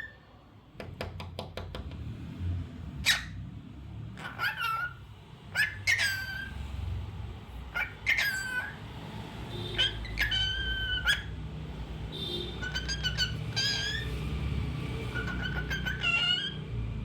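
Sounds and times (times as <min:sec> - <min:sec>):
cockatiel whistling: 0:05.6 - 0:06.5, 0:09.7 - 0:11.3, 0:12.6 - 0:14.2, 0:15.1 - 0:16.6.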